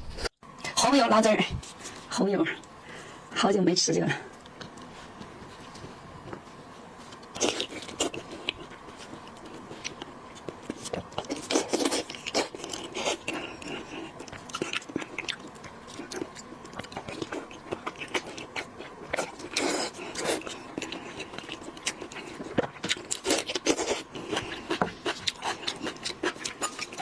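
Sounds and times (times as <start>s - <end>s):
biting and chewing: 7.0s - 27.0s.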